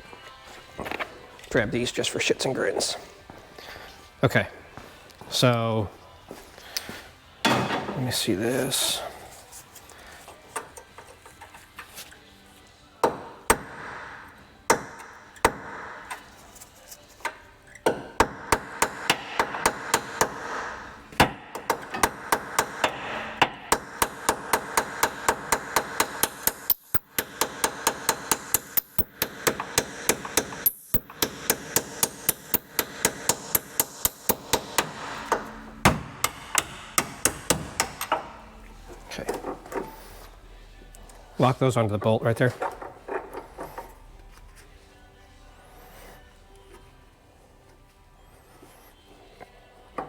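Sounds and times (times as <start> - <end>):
hammer striking steel punch: 7.4 - 8.1, 13.0 - 16.2, 17.8 - 38.4.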